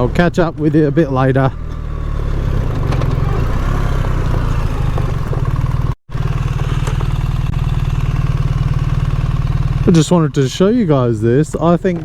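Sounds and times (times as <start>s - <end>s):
motorcycle engine running: 0.0s - 11.9s.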